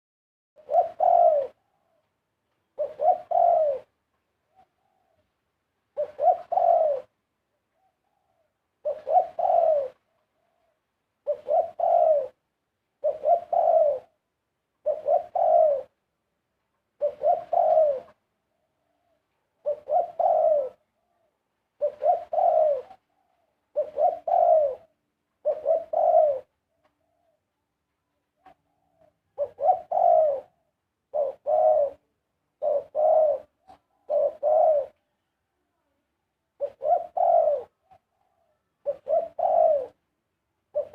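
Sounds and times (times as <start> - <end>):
dove cooing: 0.6 - 2.1, 2.7 - 5.3, 5.9 - 12.4, 13.0 - 14.2, 14.8 - 16.0, 17.0 - 27.5, 28.4 - 35.4, 36.5 - 40.0, 40.7 - 40.9.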